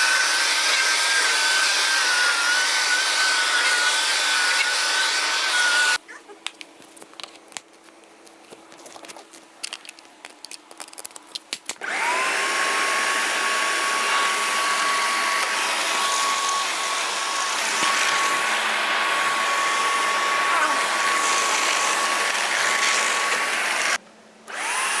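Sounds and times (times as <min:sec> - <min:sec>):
suction motor whining: 0:00.0 - 0:06.0, 0:11.8 - 0:25.0.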